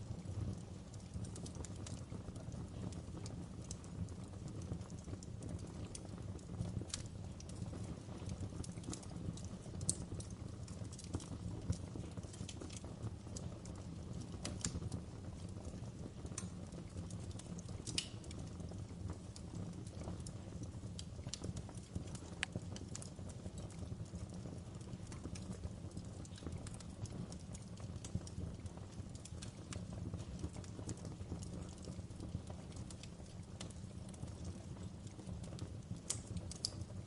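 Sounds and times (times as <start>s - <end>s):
low rumble of flames: 0.0s - 37.0s
wood fire crackling: 0.0s - 37.0s.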